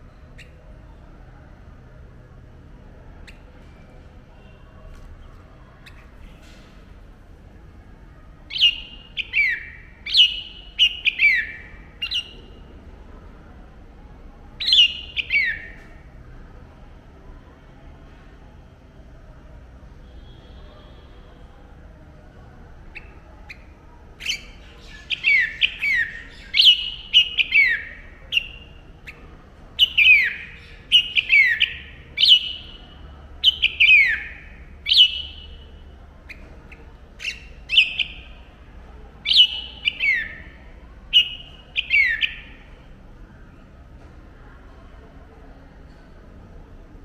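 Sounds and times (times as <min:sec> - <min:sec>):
bird calling: 0:08.5 - 0:12.6, 0:14.6 - 0:16.0, 0:22.9 - 0:42.6.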